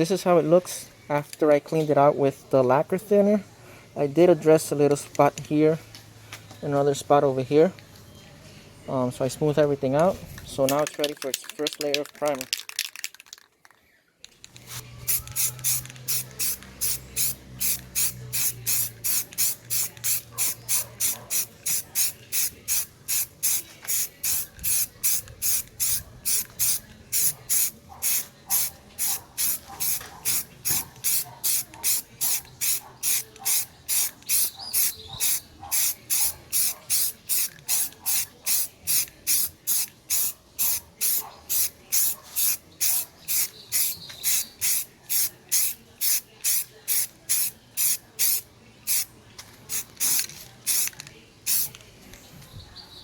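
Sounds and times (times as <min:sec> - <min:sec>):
spray paint hissing bursts: 0:14.6 - 0:49.1, 0:49.7 - 0:51.8.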